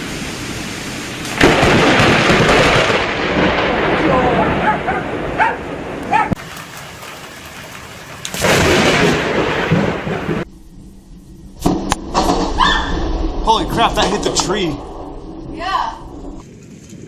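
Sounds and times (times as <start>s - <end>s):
rain falling: 0.0s - 10.5s, 13.4s - 16.4s
thunder rumbling: 0.0s - 16.4s.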